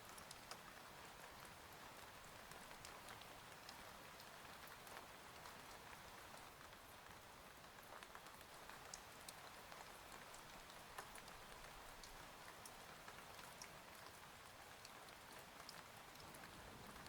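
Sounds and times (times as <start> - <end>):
faint steady rain: 0.0 - 17.0.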